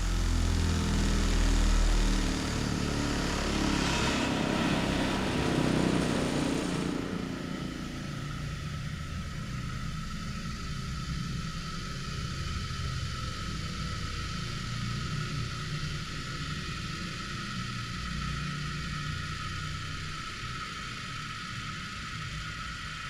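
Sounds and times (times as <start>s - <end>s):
engine humming: 0.0s - 10.2s.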